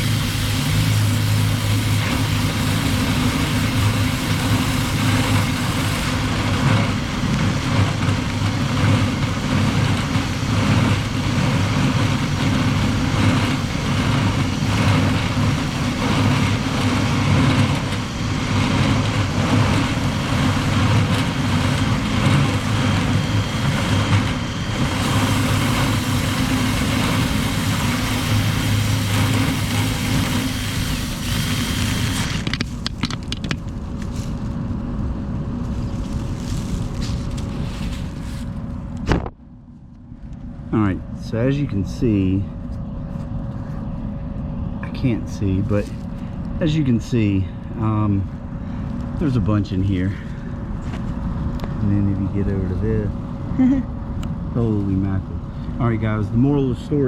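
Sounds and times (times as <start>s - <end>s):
rushing air: 0.0s - 39.2s
motor humming: 0.0s - 39.3s.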